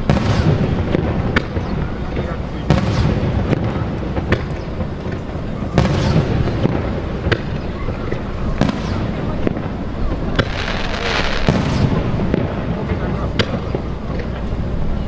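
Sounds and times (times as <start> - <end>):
fireworks bursting with sharp bangs: 0.0 - 15.0
fireworks hiss: 0.0 - 15.0.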